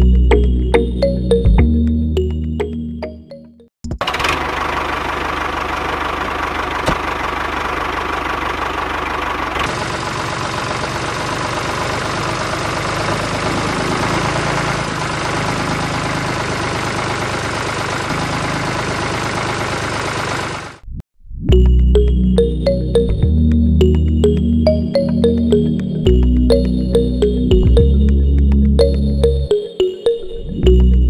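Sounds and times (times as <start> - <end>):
small water pump engine running: 4.0 - 20.8.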